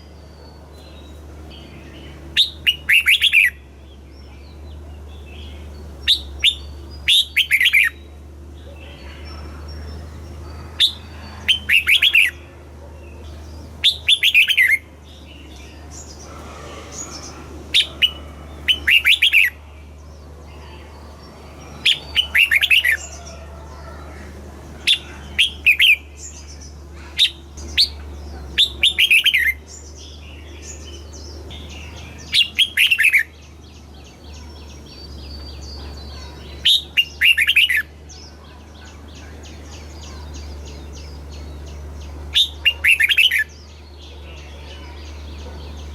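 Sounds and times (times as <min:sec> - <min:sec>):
steady low hum: 0:00.0 - 0:45.9
bird whistling song: 0:02.4 - 0:03.6, 0:06.0 - 0:08.1, 0:13.8 - 0:14.8, 0:17.7 - 0:19.6, 0:30.7 - 0:33.4, 0:34.8 - 0:37.9.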